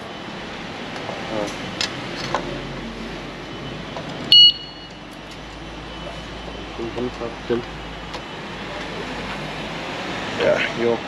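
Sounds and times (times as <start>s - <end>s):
short loud electronic beep: 4.3s - 5.0s.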